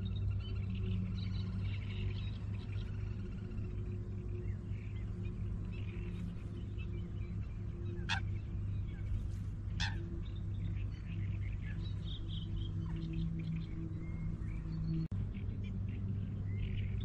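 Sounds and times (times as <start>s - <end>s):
low hum: 0.0s - 17.0s
wild birds chirping: 0.0s - 17.0s
short sharp bird calls: 9.8s - 10.0s.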